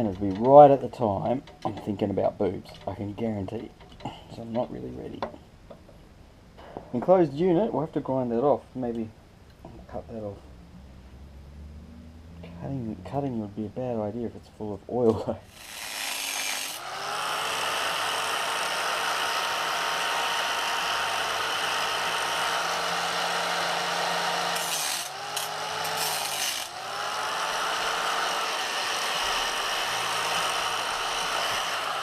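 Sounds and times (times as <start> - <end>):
angle grinder motor whine: 15.5 - 32.0
grinder grinding metal: 15.5 - 32.0.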